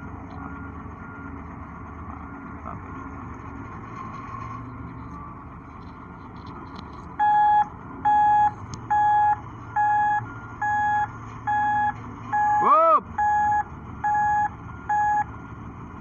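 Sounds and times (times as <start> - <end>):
heavy machine engine running: 0.0 - 16.0
reversing alarm beeps: 7.2 - 15.4.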